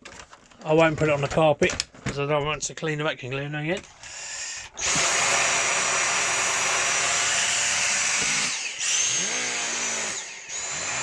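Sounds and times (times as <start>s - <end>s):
vacuum cleaner motor whine: 4.8s - 11.0s.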